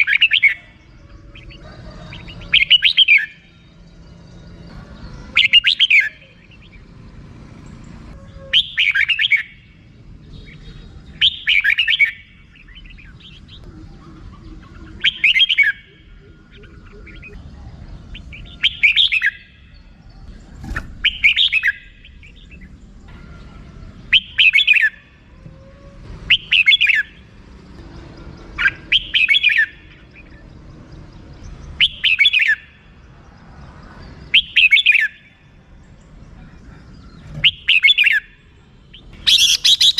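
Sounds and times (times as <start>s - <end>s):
bird chattering call: 37.0s - 39.9s.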